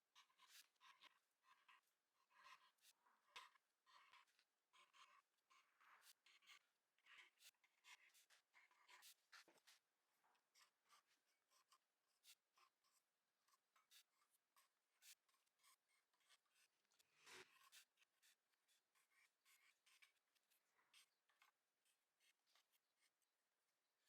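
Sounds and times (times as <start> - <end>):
light scratches and ticks: 0.1 - 24.0
scrape on a surface: 16.6 - 18.1.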